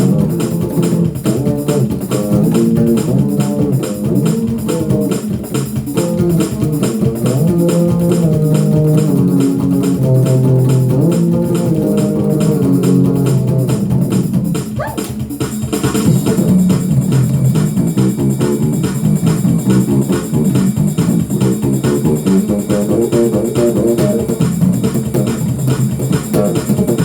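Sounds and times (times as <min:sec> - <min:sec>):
bass guitar line: 0:00.0 - 0:05.4
fast drum beat: 0:00.0 - 0:27.0.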